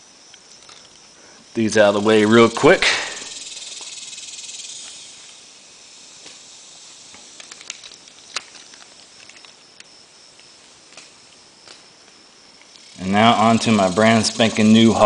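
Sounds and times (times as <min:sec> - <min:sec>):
soft steady hiss: 0:00.0 - 0:15.0
toy trucks clicking and tapping: 0:07.1 - 0:09.9.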